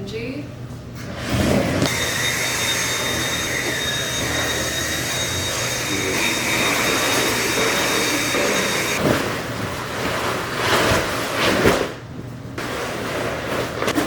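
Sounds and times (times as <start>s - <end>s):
vacuum cleaner running: 1.2s - 11.6s.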